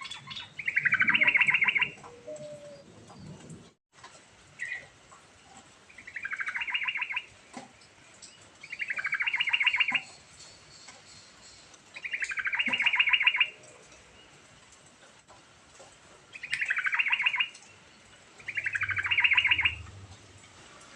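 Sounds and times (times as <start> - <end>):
bird singing chattering notes: 0.0 - 2.8, 5.9 - 7.3, 8.3 - 13.6, 16.3 - 17.7, 18.4 - 19.8.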